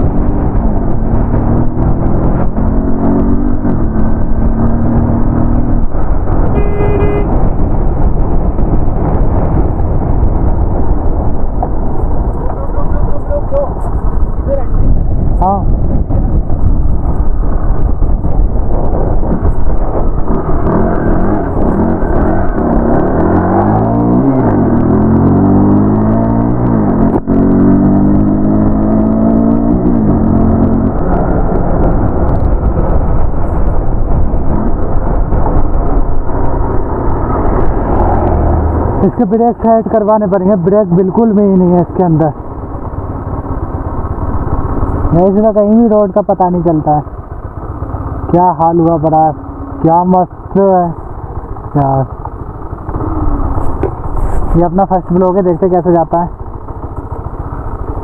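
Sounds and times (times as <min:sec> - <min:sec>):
wind buffeting microphone: 0:00.0 - 0:48.4, 0:49.0 - 0:58.0
motorcycle engine running: 0:00.0 - 0:58.0
vehicle horn honk: 0:06.5 - 0:07.5
steady low tone: 0:49.3 - 0:58.0.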